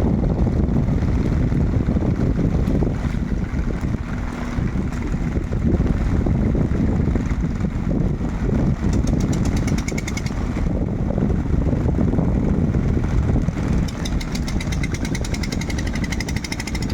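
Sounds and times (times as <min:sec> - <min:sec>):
boat engine rumbling: 0:00.0 - 0:16.9
high rapid ticks: 0:08.6 - 0:10.7, 0:13.8 - 0:16.9.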